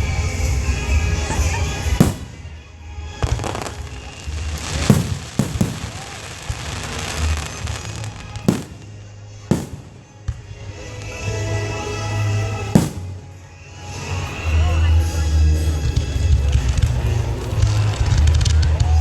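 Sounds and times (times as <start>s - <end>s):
fireworks crackling: 0.0s - 19.0s
fireworks booming: 1.3s - 13.6s.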